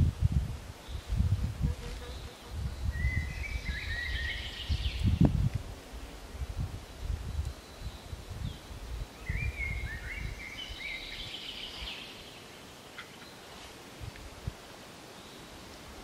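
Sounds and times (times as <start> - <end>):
songbird chirping: 2.0 - 5.3, 6.8 - 14.3, 15.0 - 15.7.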